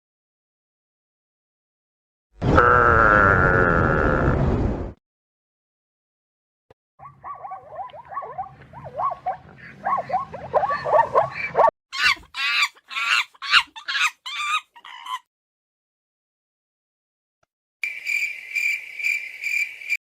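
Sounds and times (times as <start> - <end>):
low hum: 7.0 - 11.7
pigs squealing: 7.0 - 15.3.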